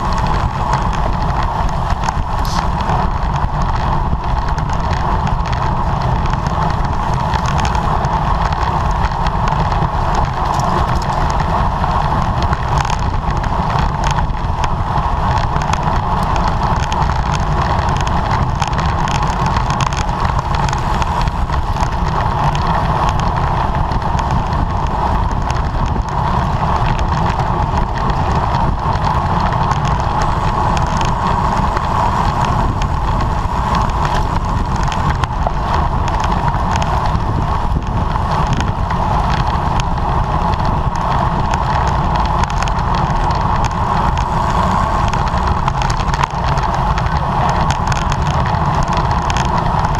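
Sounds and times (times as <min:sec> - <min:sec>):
wind noise on microphone: 0:00.0 - 0:49.9.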